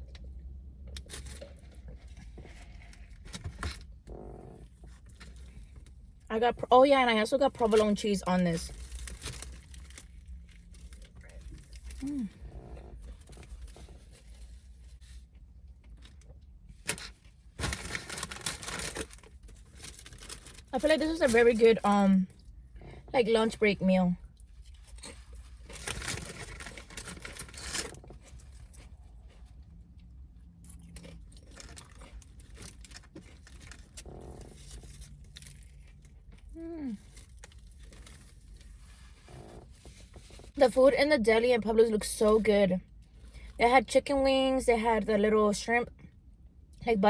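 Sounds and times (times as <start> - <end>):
paper wrapper rustling: 8.7 - 12.3, 16.9 - 21.7, 24.6 - 28.9
paper crinkling: 16.9 - 21.7, 24.6 - 29.4
person chewing food: 28.2 - 39.0.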